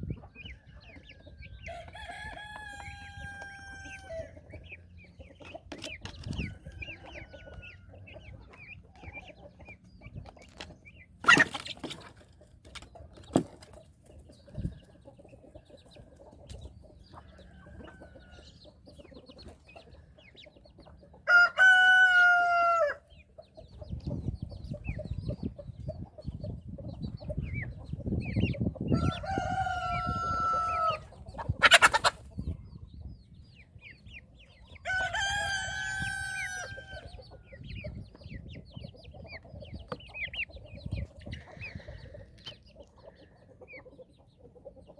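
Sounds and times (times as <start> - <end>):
young birds peeping: 0.0 - 44.9
rooster crowing: 1.7 - 4.3, 21.3 - 23.0, 29.0 - 31.0, 34.8 - 37.1.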